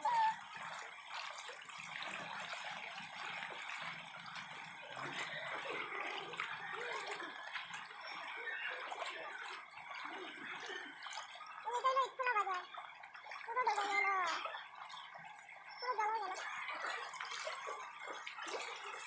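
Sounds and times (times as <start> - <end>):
floodwater trickling and lapping: 0.0 - 19.0.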